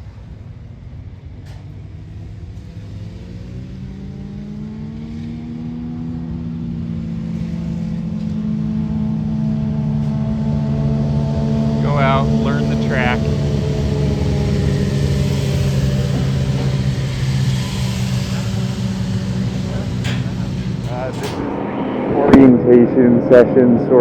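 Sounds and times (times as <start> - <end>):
motorcycle engine: 0.0 - 22.8.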